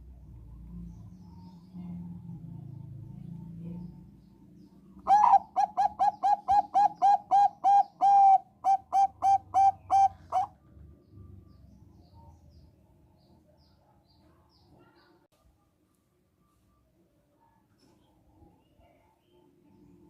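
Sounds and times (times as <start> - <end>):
zebra dove cooing: 5.0 - 10.6.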